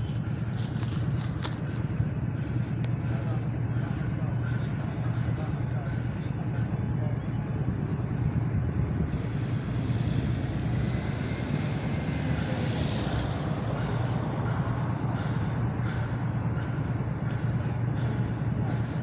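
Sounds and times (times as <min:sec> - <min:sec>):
train rumbling past: 0:00.0 - 0:19.0.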